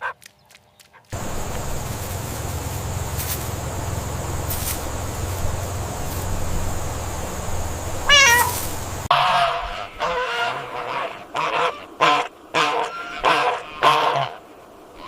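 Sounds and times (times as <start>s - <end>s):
steady background noise: 1.1s - 9.2s
warbling call: 1.2s - 10.3s
short pitched animal calls: 8.0s - 9.9s.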